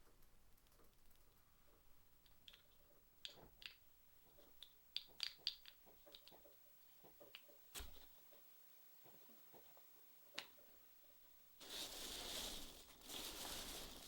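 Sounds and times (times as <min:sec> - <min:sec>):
small objects clicking and tapping: 0:00.0 - 0:08.1.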